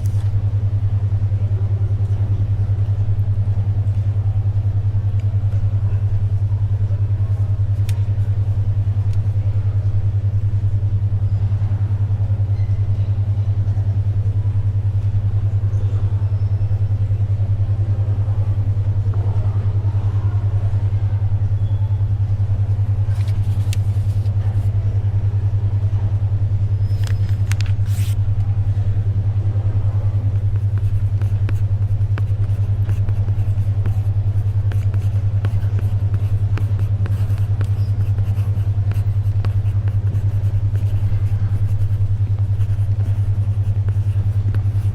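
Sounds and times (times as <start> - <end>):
papery rustles: 0.0 - 0.4, 23.1 - 24.7, 27.0 - 28.2
faint library ambience: 0.0 - 44.9
pulsing low hum tone: 0.0 - 44.9.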